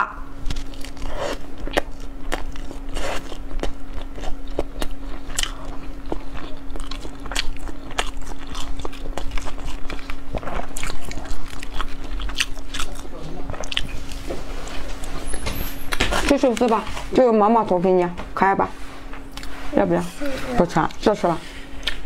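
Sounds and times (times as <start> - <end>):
steady low hum: 0.0 - 22.0
person chewing food: 0.4 - 16.3, 19.3 - 19.5, 21.7 - 22.0.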